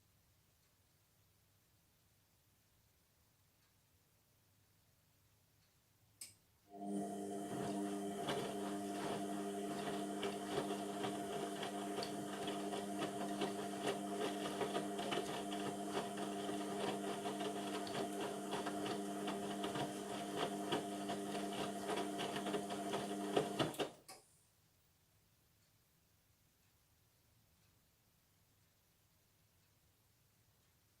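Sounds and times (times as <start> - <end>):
washing machine running: 6.7 - 24.0.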